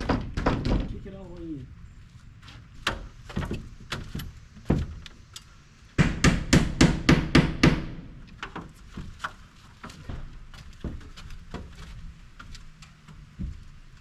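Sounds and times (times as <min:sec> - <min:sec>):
knocks on plywood siding: 0:00.0 - 0:01.0, 0:02.8 - 0:05.0, 0:06.0 - 0:12.5.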